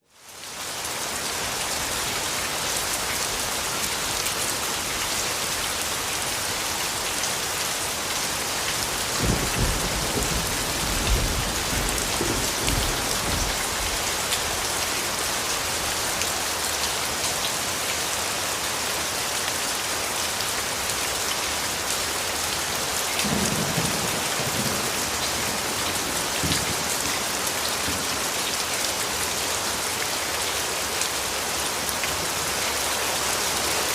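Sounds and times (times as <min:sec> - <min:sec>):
heavy rain hissing: 0:00.2 - 0:33.9
low rolls of thunder: 0:09.2 - 0:14.0, 0:23.2 - 0:27.3.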